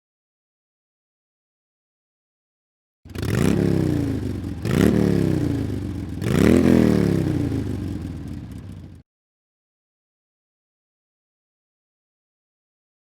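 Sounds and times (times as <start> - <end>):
motorcycle engine revving: 3.1 - 9.0.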